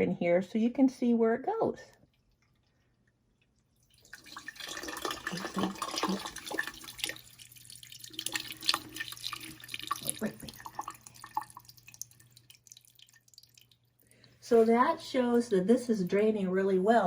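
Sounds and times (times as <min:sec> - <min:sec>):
water splashing into drain pipe: 0:02.2 - 0:15.0.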